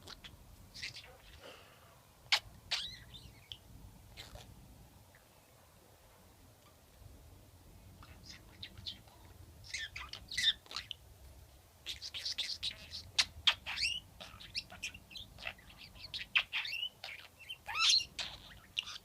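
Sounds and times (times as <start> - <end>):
budgerigar chattering: 2.3 - 3.6, 11.9 - 19.0.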